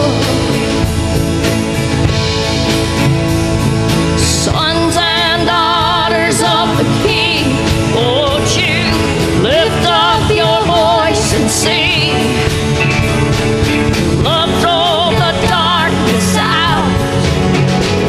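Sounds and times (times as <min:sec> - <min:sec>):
person singing: 0:00.0 - 0:01.2, 0:04.2 - 0:13.2, 0:13.8 - 0:17.7
worship band playing: 0:00.0 - 0:18.0.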